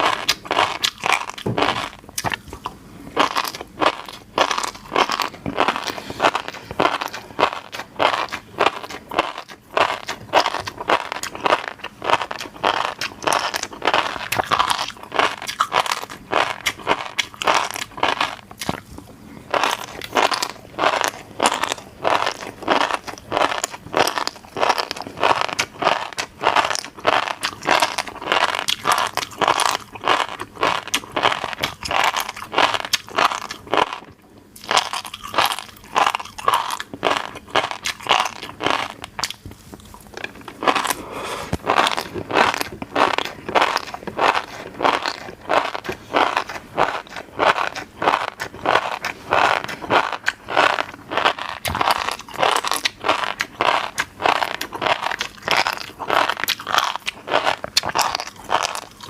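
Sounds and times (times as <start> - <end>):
chewing fish roe popping: 0.0 - 59.0.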